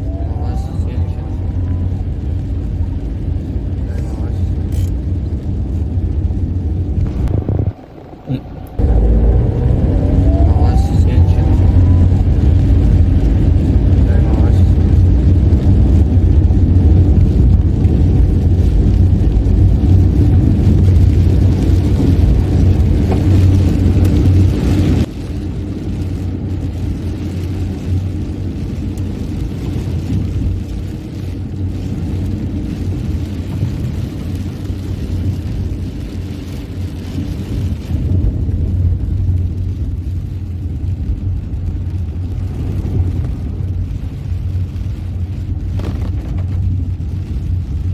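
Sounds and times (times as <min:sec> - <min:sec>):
car interior road and engine noise: 0:00.0 - 0:47.9.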